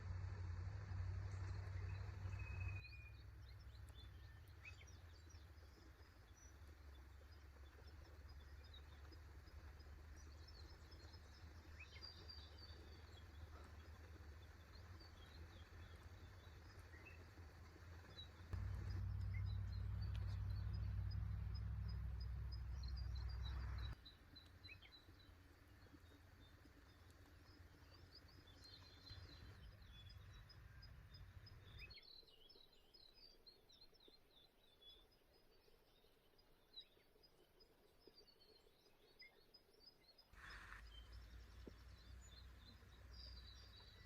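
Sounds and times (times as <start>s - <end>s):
low steady rumble: 0.0s - 32.0s, 40.4s - 44.0s
small birds chirping: 0.0s - 44.0s.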